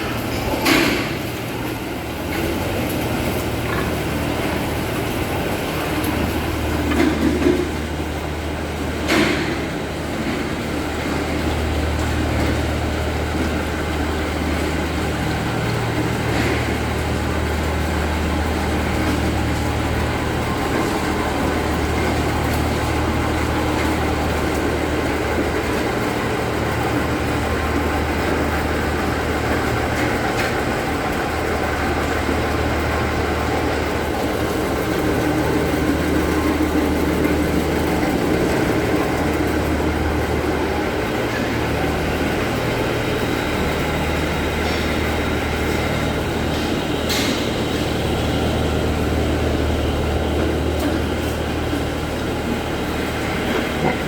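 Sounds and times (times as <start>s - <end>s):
machinery humming and rumbling: 0.0s - 54.0s.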